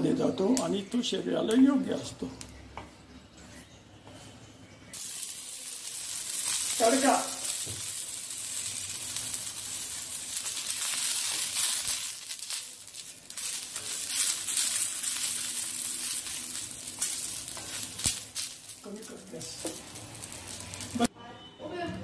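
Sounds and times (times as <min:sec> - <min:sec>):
chillies sizzling in oil: 0:04.8 - 0:21.1
wooden spatula scraping: 0:13.0 - 0:18.0.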